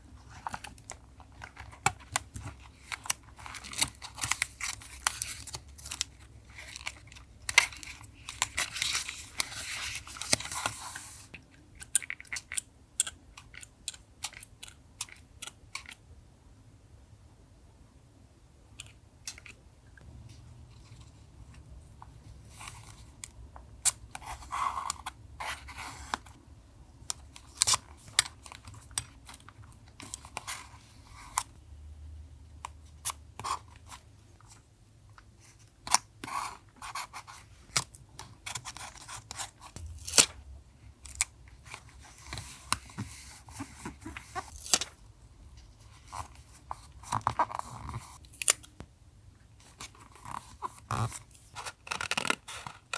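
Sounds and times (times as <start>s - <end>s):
paper rustling and crinkling: 41.6s - 45.0s.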